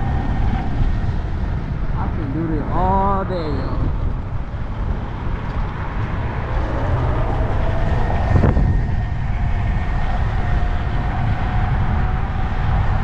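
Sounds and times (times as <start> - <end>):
road and wind noise: 0.0 - 13.0.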